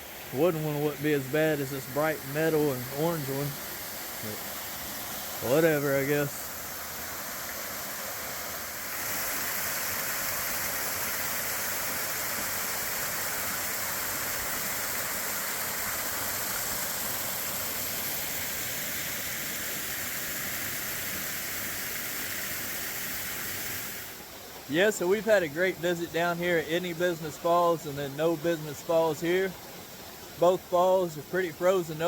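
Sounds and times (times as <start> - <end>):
waterfall rushing: 0.0 - 20.1.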